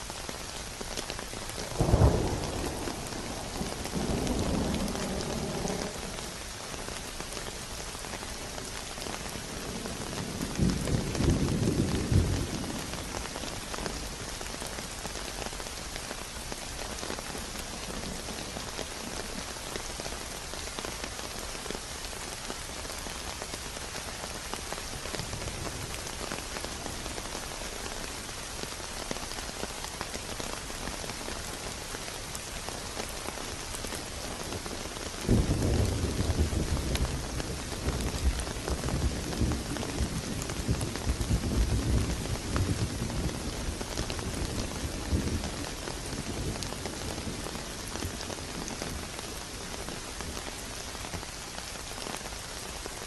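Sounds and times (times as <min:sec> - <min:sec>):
rain falling: 0:00.0 - 0:53.0
thunder: 0:01.8 - 0:06.4.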